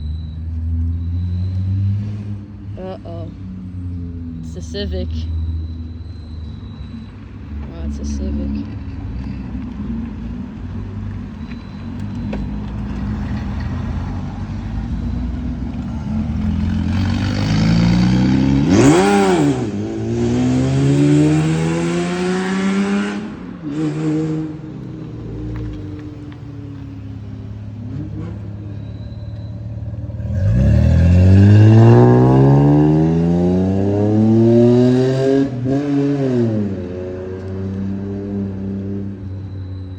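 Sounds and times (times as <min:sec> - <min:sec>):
rumble of other engines: 0:00.0 - 0:39.9
cars accelerating hard: 0:12.0 - 0:27.1, 0:27.7 - 0:39.9.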